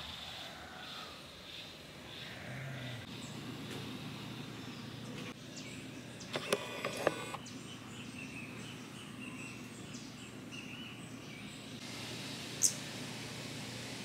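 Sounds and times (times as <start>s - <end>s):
faint steady hiss: 11.5s - 14.0s.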